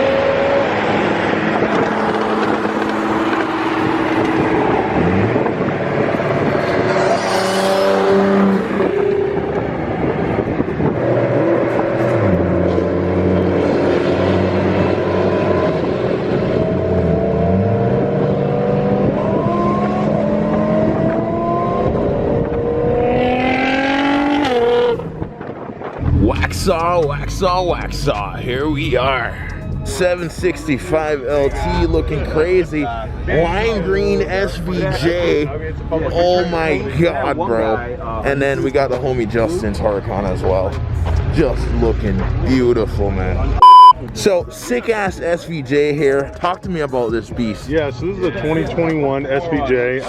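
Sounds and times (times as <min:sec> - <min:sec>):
car engine accelerating through gears: 0:00.0 - 0:25.4.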